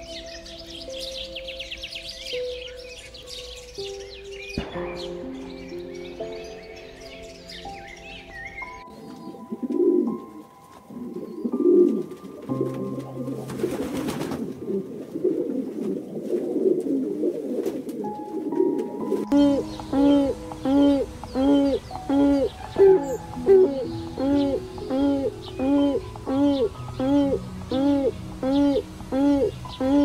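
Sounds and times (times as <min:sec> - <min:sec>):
soft piano notes: 0:00.0 - 0:30.0
pigeons cooing: 0:07.2 - 0:30.0.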